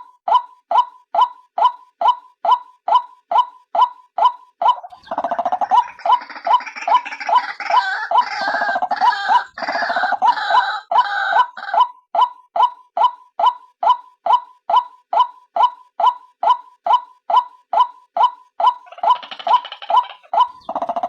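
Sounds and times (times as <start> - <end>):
harsh croaking chatter: 4.8 - 11.7, 18.8 - 21.0.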